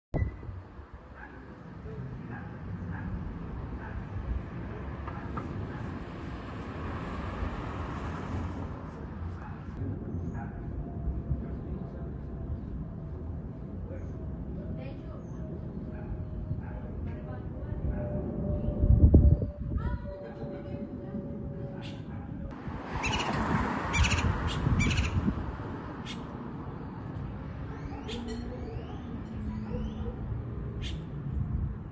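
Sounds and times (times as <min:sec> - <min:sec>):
steady low rumble: 0:09.0 - 0:22.8.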